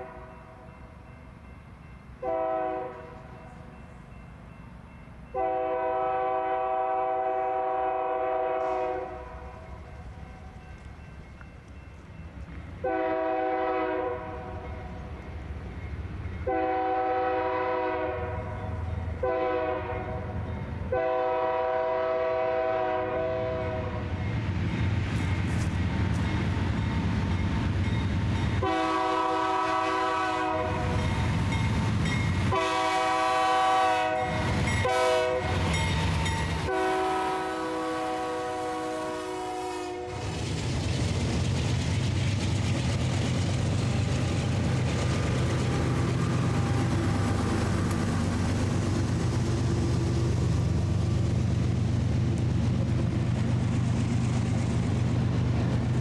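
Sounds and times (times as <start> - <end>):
locomotive air horn blasts: 0.0 - 0.5, 2.2 - 3.4, 5.3 - 9.8, 12.8 - 14.7, 16.4 - 24.1, 28.6 - 31.0, 32.4 - 40.2
train rumbling: 0.0 - 56.0.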